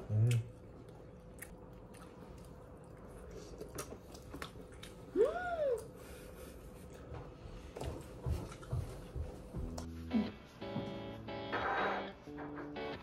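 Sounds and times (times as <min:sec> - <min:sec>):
woman humming mmm: 0:05.1 - 0:06.0.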